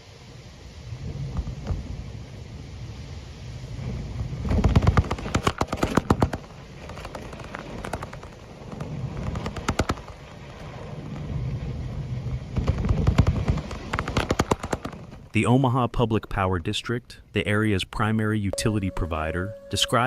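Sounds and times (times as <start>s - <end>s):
storm wind gusting: 0.2s - 15.4s
clatter of sharp impacts: 4.5s - 11.2s, 12.5s - 15.3s.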